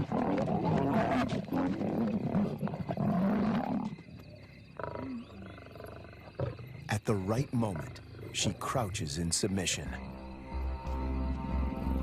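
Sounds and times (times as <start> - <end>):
lions growling: 0.0 - 8.8.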